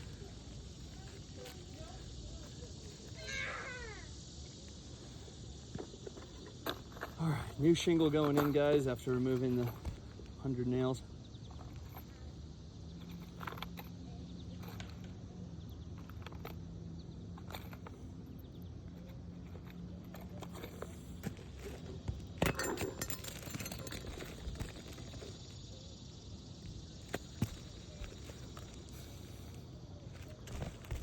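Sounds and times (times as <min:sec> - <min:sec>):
faint low hum: 0:00.0 - 0:31.0
shingle being handled on roof: 0:20.2 - 0:25.4, 0:27.0 - 0:31.0.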